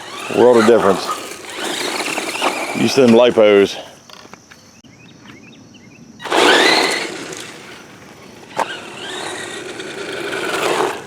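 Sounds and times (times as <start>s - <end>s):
electric motor whining: 0.0s - 3.6s, 6.2s - 11.0s
tyre noise: 0.0s - 4.7s, 6.2s - 11.0s.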